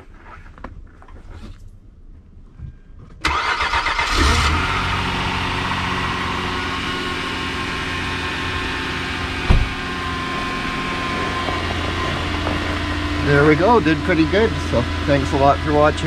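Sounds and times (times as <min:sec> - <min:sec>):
car engine cold-starting: 0:03.2 - 0:16.0
engine fast idle: 0:03.3 - 0:16.0
thump: 0:09.4 - 0:09.9.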